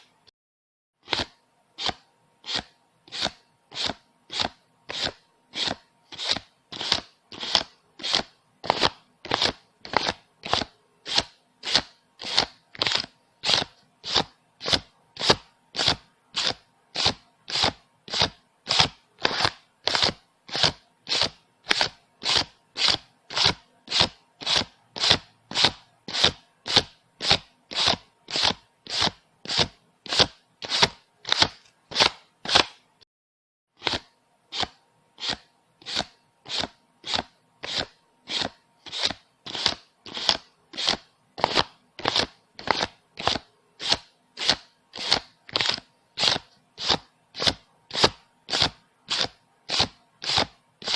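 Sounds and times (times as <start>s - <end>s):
banknotes rustling as counted: 1.0s - 32.9s, 33.8s - 50.9s.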